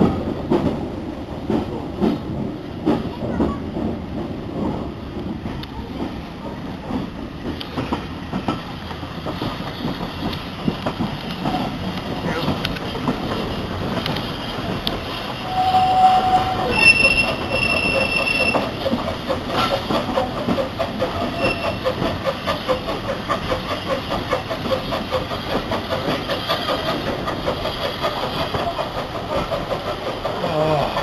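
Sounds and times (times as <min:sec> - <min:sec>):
steam train rhythmic beat: 0:06.8 - 0:30.4
high squealing tones: 0:15.4 - 0:18.7.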